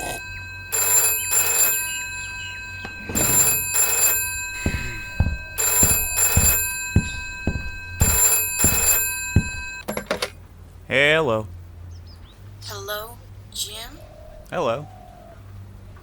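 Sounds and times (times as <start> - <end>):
telephone ringing: 0.0 - 10.2
dull thumps: 3.1 - 9.9.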